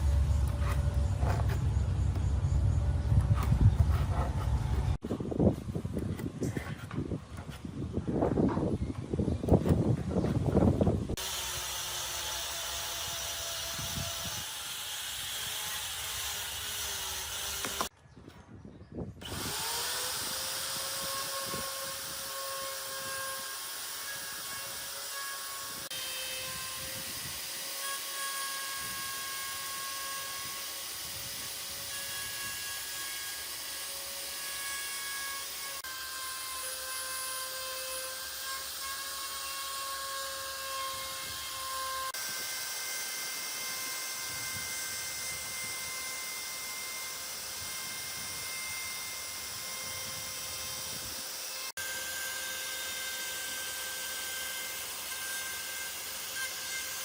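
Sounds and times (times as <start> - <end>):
electric power tool whining: 11.1 - 17.9, 19.2 - 57.0.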